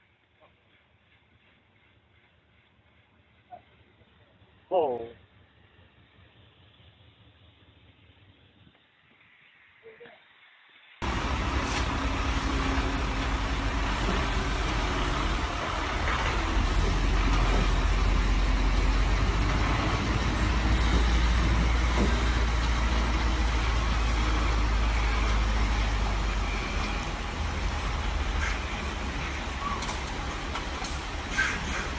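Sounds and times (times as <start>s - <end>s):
broad hiss: 8.9s - 15.7s, 27.7s - 31.9s
large vehicle engine droning: 11.0s - 31.9s.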